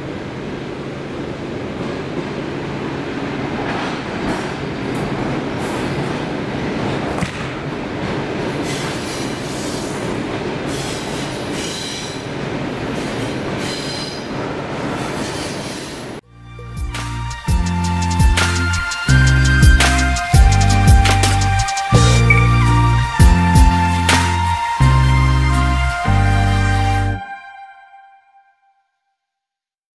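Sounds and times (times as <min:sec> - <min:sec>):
train wheels rumbling: 0:00.0 - 0:16.2, 0:16.8 - 0:25.7
high wheel squeals: 0:21.9 - 0:23.0.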